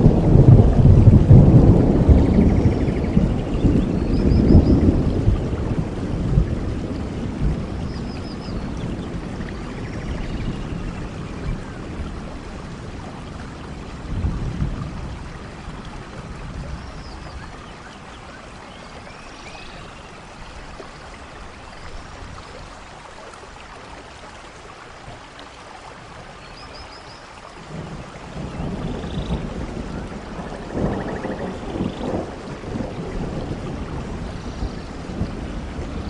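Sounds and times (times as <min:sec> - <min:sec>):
thunder rumbling: 0:00.0 - 0:17.6, 0:27.6 - 0:36.0
steady rainfall: 0:00.0 - 0:36.0.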